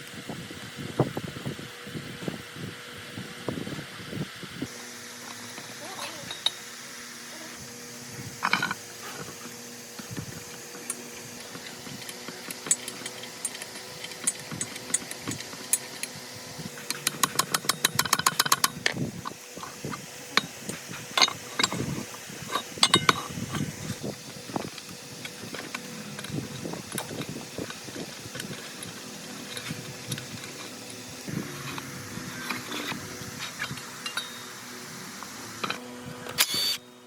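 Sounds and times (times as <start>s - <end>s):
metal tools clinking and knocking: 20.4s - 23.3s, 33.6s - 34.4s.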